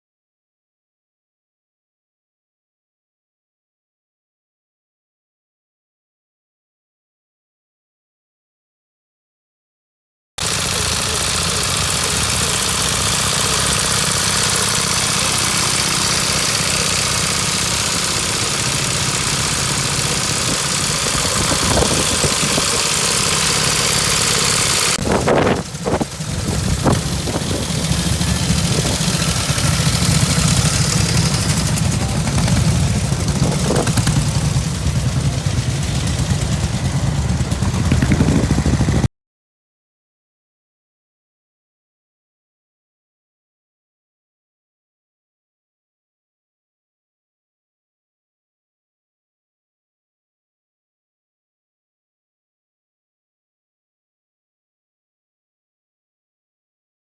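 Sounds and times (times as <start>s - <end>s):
engine knocks: 10.4s - 39.1s
vintage motorcycle engines running: 10.4s - 39.1s.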